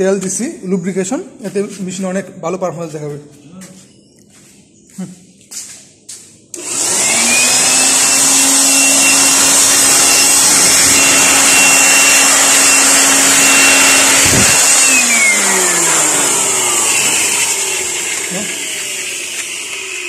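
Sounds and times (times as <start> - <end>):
electric air blower whining: 6.6 - 20.0.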